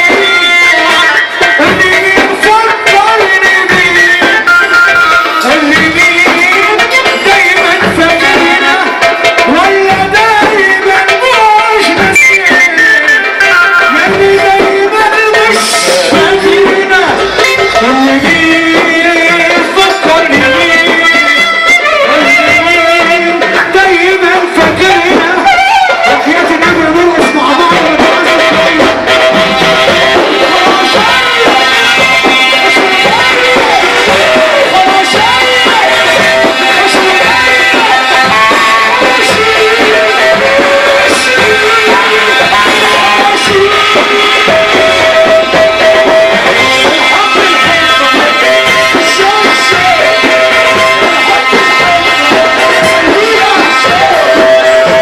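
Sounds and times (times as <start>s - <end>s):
light percussion: 0.0s - 55.0s
ornamented melody instrument: 11.8s - 23.9s.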